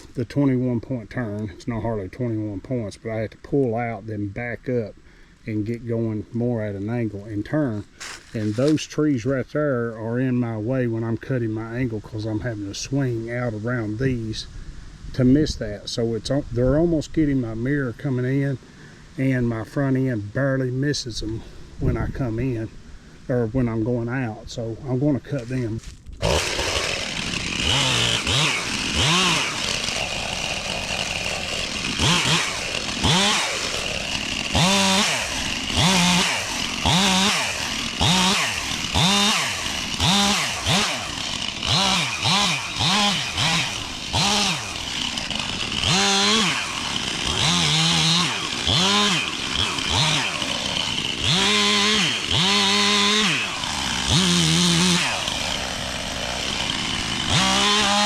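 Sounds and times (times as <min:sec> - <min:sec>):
chainsaw revving: 0:07.7 - 0:08.8, 0:25.4 - 0:58.0.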